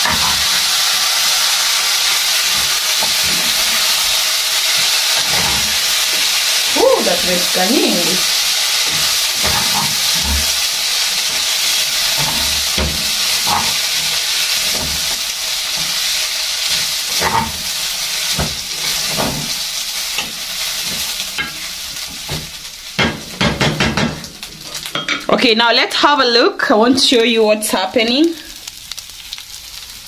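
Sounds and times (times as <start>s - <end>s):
spoon scraping and knocking pan: 0.0s - 0.7s, 2.1s - 25.3s
food sizzling in a pan: 0.0s - 30.0s.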